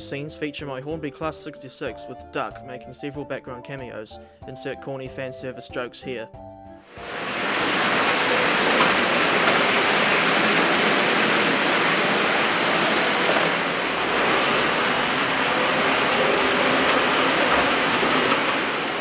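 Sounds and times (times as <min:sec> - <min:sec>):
model train whirring: 0:07.0 - 0:19.0.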